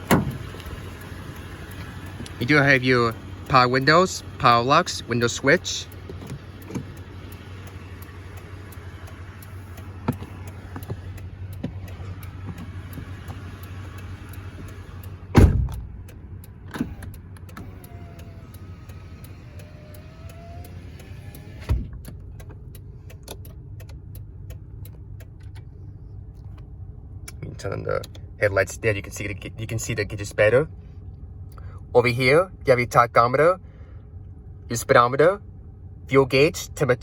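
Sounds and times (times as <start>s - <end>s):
power window motor whirring: 0.0s - 2.6s, 3.2s - 22.3s
low steady hum: 0.0s - 37.0s
sharp thumps: 9.4s - 20.0s.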